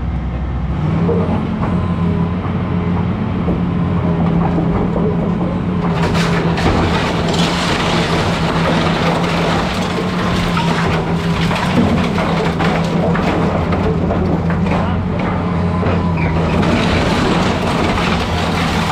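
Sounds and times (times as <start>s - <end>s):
excavator diesel engine running: 0.0s - 18.9s
wood and debris cracking: 4.0s - 18.9s.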